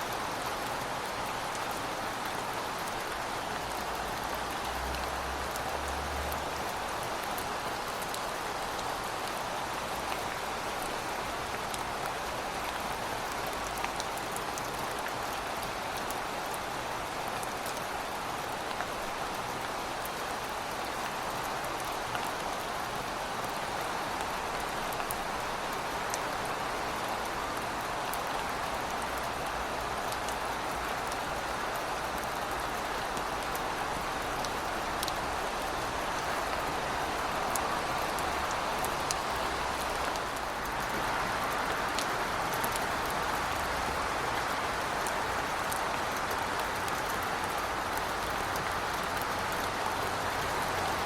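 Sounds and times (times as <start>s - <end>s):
heavy rain: 0.0s - 51.0s.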